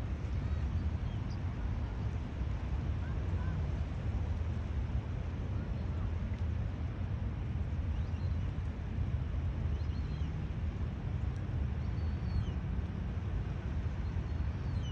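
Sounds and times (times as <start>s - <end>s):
rumble of water and wind: 0.0s - 14.9s.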